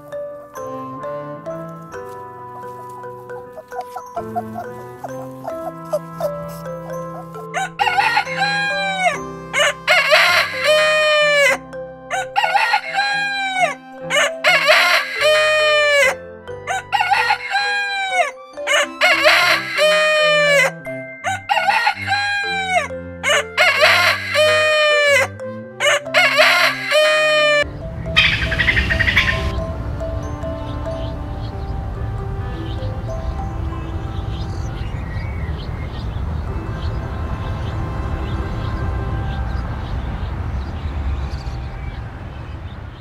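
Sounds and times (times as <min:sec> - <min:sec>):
background music low notes: 0:00.0 - 0:43.0
rooster crowing: 0:07.5 - 0:29.6.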